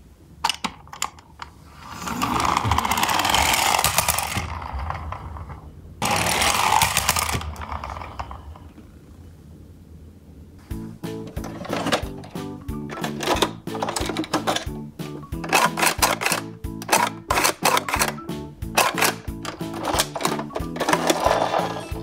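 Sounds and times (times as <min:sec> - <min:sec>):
toy wheels rattling: 0:00.9 - 0:08.8, 0:11.2 - 0:22.0
toy clicks: 0:02.4 - 0:04.6, 0:06.0 - 0:08.3, 0:15.4 - 0:22.0.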